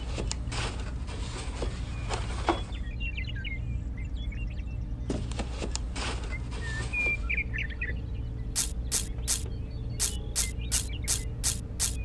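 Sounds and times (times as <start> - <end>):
small birds chirping: 1.7 - 5.6, 6.3 - 12.0
steady low hum: 8.0 - 12.0
short clicks: 8.6 - 12.0.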